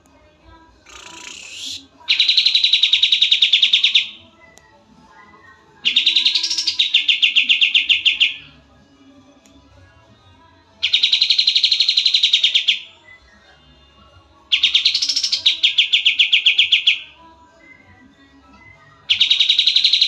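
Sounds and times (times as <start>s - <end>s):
songbird trilling: 0.9s - 4.2s, 5.9s - 8.5s, 10.8s - 12.9s, 14.5s - 17.1s, 19.1s - 20.0s.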